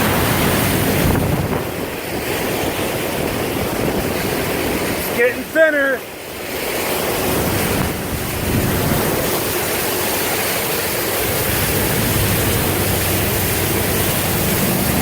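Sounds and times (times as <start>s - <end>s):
floodwater rushing and splashing: 0.0s - 15.0s
engine low hum: 11.2s - 15.0s.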